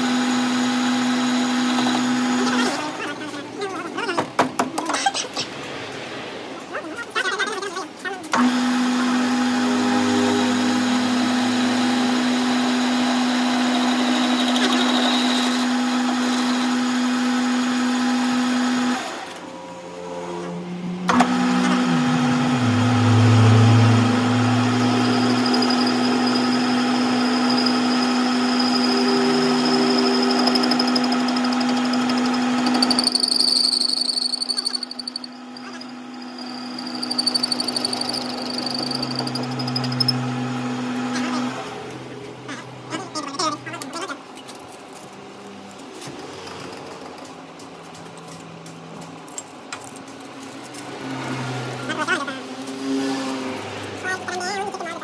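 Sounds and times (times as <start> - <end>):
workshop machine motor humming: 8.3 - 42.4.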